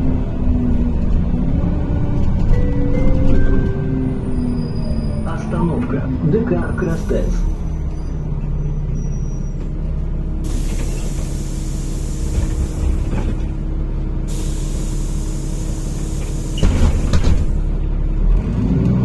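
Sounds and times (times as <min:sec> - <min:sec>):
bus engine idling: 0:00.0 - 0:18.6
compressed air hissing: 0:10.4 - 0:13.1, 0:14.3 - 0:17.6.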